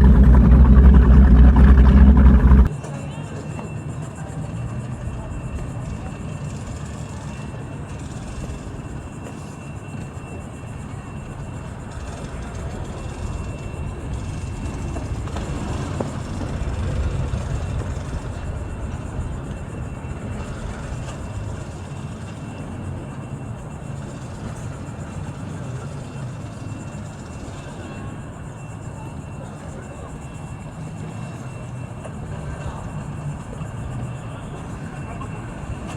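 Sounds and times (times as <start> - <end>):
low motor rumble: 0.0 - 2.8.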